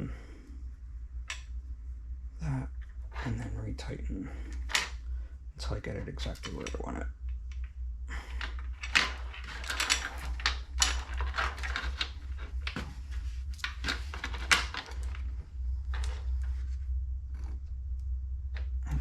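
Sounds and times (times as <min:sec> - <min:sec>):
steady low hum: 0:00.0 - 0:19.0
cord rubbing: 0:07.6 - 0:17.8.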